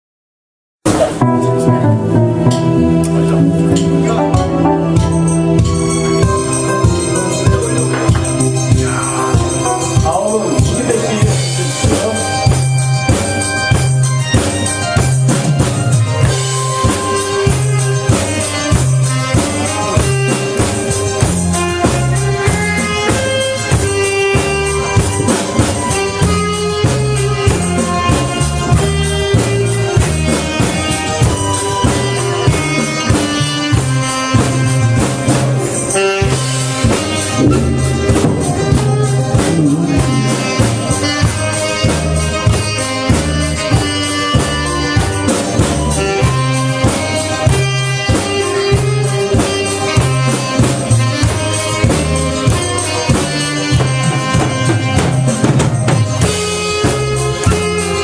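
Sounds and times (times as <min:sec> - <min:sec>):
drum kit beat: 0:00.8 - 0:58.0
pulsing bass line: 0:00.9 - 0:58.0
saxophone melody: 0:00.9 - 0:58.0.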